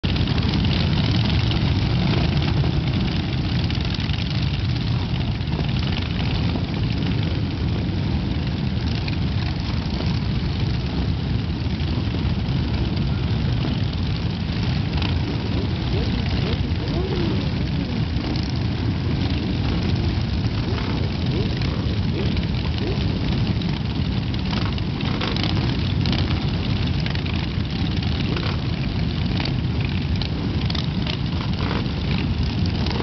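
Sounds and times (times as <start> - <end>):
motorcycles rumbling past: 0.1 - 33.0.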